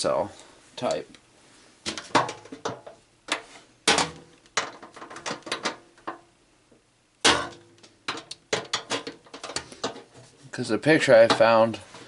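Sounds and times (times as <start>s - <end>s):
knocks and rattles of microwave parts: 1.9s - 6.2s, 7.2s - 10.3s.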